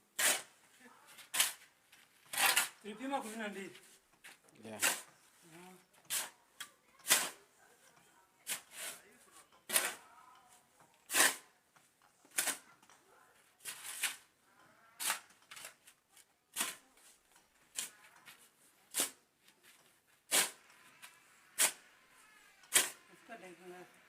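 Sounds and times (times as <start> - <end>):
hand tool striking and scraping: 0.2 - 0.5, 1.2 - 2.9, 3.8 - 5.2, 5.9 - 6.4, 7.0 - 7.4, 8.4 - 10.0, 15.0 - 21.8, 22.6 - 23.0.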